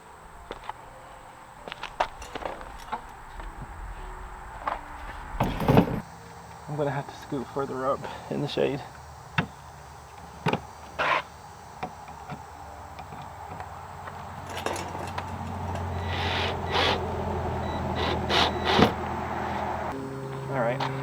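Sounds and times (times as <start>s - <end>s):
work table scraping: 0.0s - 6.0s
low steady hum: 0.0s - 6.4s.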